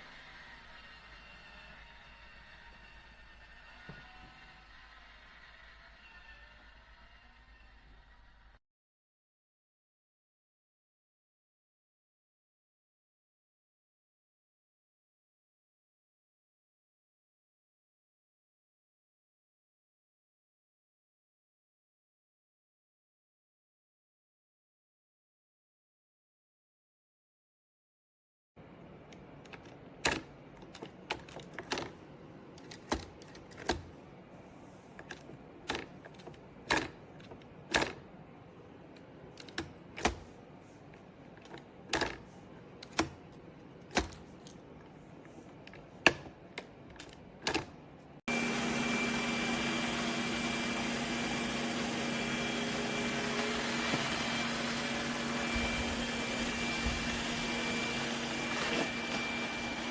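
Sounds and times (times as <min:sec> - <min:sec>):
robot vacuum motor whirring: 0:48.3 - 0:59.9.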